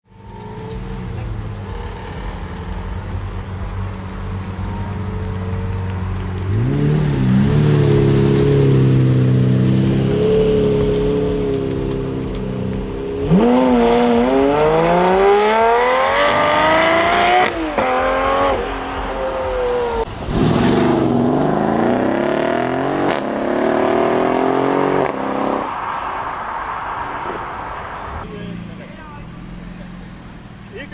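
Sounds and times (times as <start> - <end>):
car engines revving and accelerating: 0.0 - 30.9.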